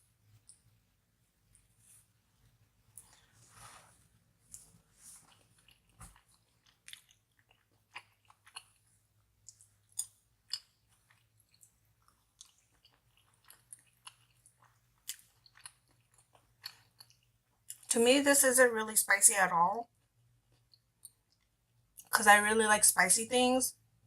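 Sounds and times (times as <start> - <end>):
person chewing wet smacks: 4.6 - 17.9.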